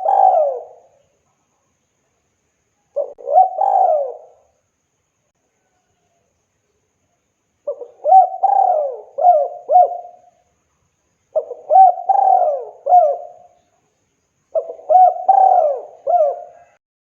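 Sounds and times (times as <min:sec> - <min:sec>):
dove cooing: 0:00.0 - 0:01.0, 0:03.0 - 0:04.5, 0:07.7 - 0:10.3, 0:11.4 - 0:13.6, 0:14.5 - 0:16.8.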